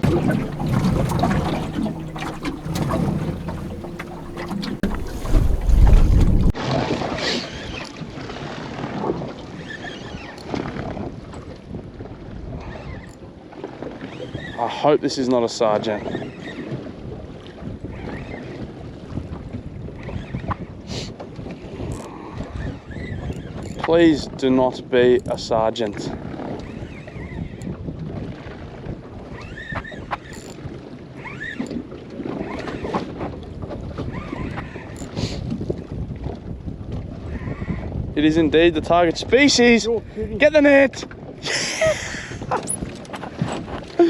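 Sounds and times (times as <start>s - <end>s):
boat engine humming: 0.0s - 6.6s
water lapping against boat hull: 0.0s - 6.6s, 21.2s - 38.1s, 38.8s - 44.0s
wind buffeting microphone: 0.0s - 6.6s, 25.3s - 29.3s, 33.1s - 44.0s.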